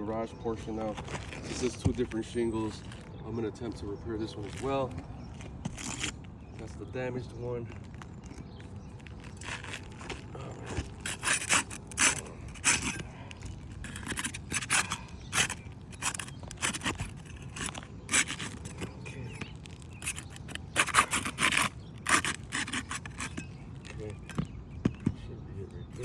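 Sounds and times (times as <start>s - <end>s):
scraping on roof shingles: 7.6s - 25.3s.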